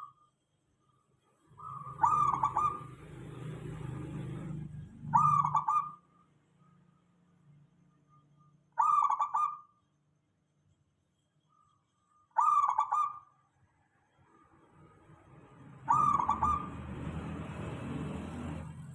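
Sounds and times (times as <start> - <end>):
dove cooing: 1.6 - 3.3, 5.1 - 6.0, 8.8 - 9.7, 12.4 - 13.2, 15.8 - 17.3.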